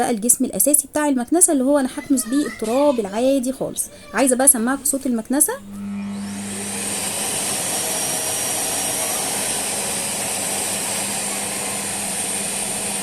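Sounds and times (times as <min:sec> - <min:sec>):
vacuum cleaner motor whine: 0:05.6 - 0:13.0
loud rush of air: 0:05.7 - 0:13.0.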